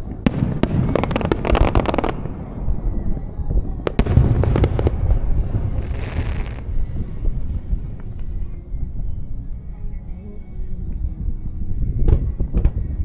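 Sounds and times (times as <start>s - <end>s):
fireworks bangs and crackling: 0.0s - 8.5s, 12.0s - 13.0s
low rumble: 0.0s - 13.0s.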